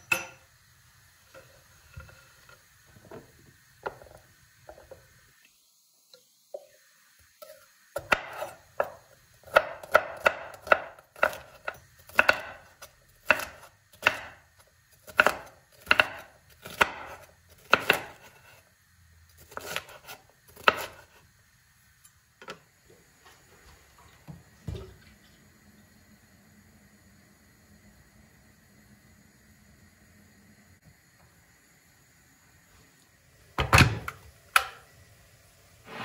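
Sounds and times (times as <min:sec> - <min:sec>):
knife chopping on cutting board: 0:08.0 - 0:12.6, 0:13.2 - 0:14.4, 0:15.0 - 0:18.2.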